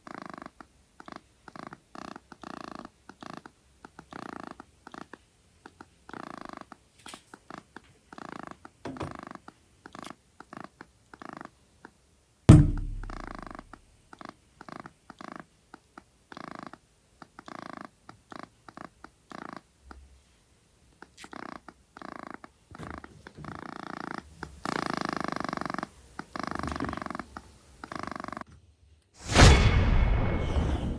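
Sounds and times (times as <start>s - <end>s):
purring or snoring noise: 0.0s - 6.8s, 7.4s - 11.6s, 12.8s - 15.5s, 16.3s - 19.7s, 21.2s - 28.5s
loud boom: 29.2s - 30.9s.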